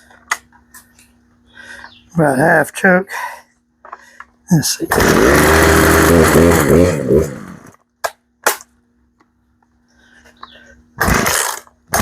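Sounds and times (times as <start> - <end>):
chainsaw engine running unevenly: 4.9 - 7.8, 11.0 - 12.0.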